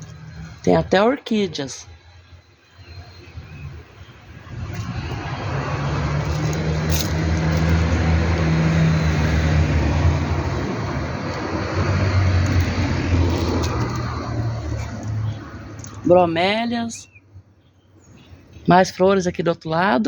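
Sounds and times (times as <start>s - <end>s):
vehicle engine droning: 0.0s - 1.0s, 2.2s - 16.5s.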